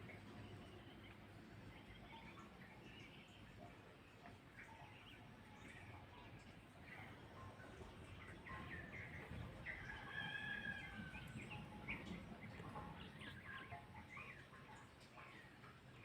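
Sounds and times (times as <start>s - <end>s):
birds chirping: 0.0s - 16.0s
rooster crowing: 9.9s - 11.5s.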